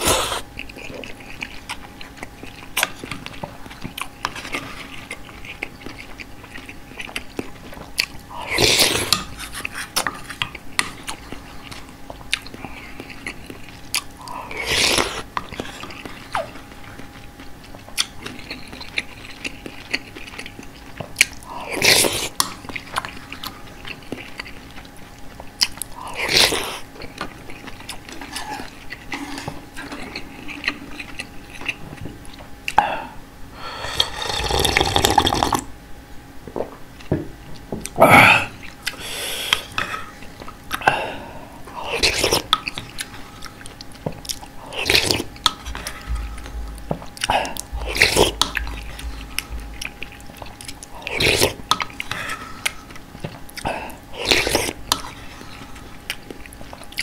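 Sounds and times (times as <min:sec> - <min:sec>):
person chewing: 0:00.0 - 0:35.6, 0:37.0 - 0:57.0
biting and crunching: 0:41.7 - 0:57.0.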